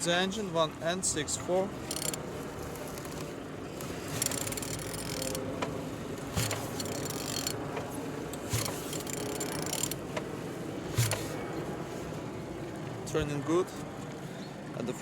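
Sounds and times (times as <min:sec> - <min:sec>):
engine mechanical clatter: 0:01.8 - 0:11.8
ratchet wrench clicking: 0:01.9 - 0:02.2, 0:04.1 - 0:05.4, 0:06.4 - 0:07.6, 0:08.4 - 0:10.0, 0:11.0 - 0:11.3.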